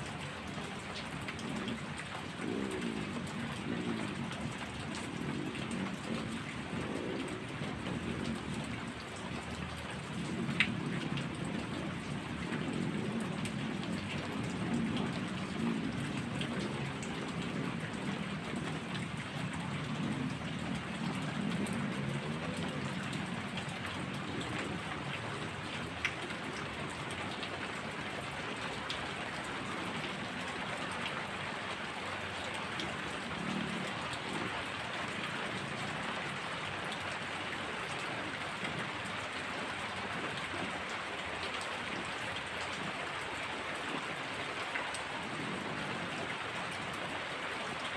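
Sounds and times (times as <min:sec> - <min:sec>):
heavy rain: 0:00.0 - 0:47.9
raindrops tapping: 0:00.0 - 0:47.9
rumble of thunder: 0:00.9 - 0:31.4, 0:32.3 - 0:36.7.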